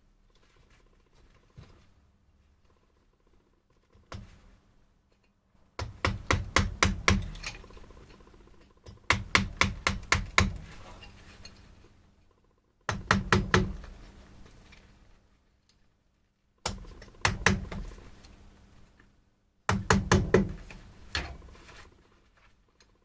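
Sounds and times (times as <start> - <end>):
hammer striking chisel into wood: 5.8 - 7.6, 8.9 - 10.6, 12.9 - 13.9, 16.6 - 17.9, 19.7 - 20.7.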